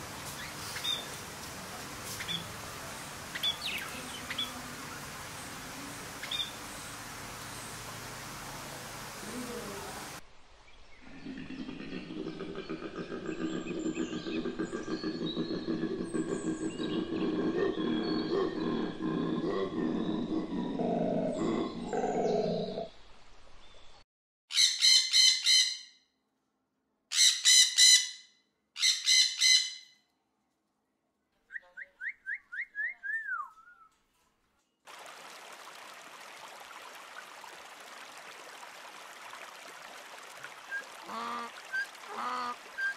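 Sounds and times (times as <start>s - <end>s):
shallow stream rushing: 34.9s - 42.9s.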